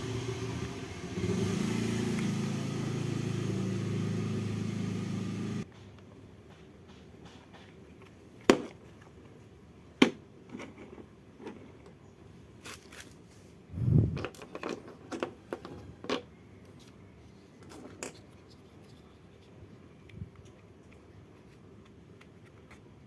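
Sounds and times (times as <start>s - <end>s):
toy parts clicking and knocking: 14.1s - 16.3s.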